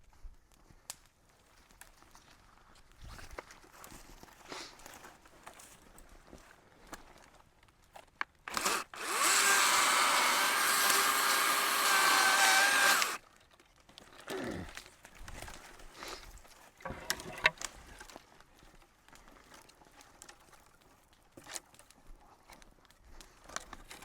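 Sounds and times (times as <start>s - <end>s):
chainsaw running: 8.5s - 13.2s
knocks and shuffling: 16.9s - 17.7s.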